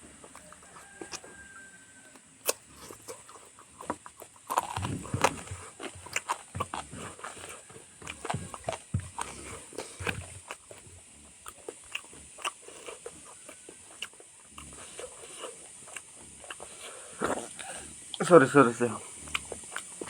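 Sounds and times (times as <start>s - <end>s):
chewing and lip-smacking: 0.0s - 20.0s.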